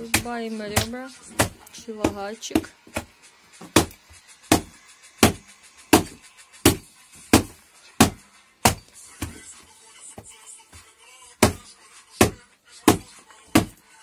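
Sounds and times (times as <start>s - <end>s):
cleaver chopping through bones: 0.0s - 5.4s, 6.0s - 9.4s, 11.4s - 13.8s.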